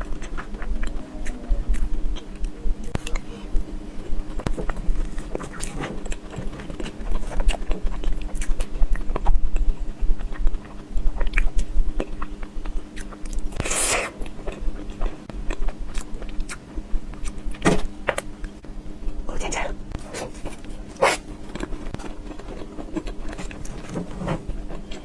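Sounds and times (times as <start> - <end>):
mouth chewing with wet smacks: 4.4 - 17.4.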